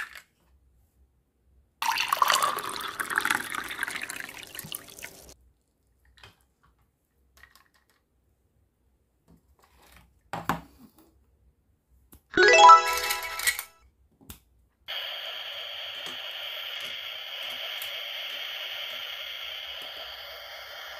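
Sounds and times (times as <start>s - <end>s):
liquid pouring and splashing: 1.8s - 5.4s.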